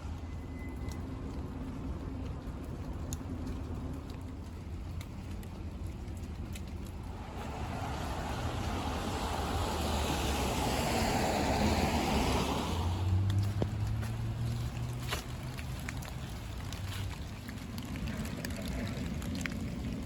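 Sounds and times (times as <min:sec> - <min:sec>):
low traffic rumble: 0:00.0 - 0:20.0
car tyres hissing on wet street: 0:06.8 - 0:20.0.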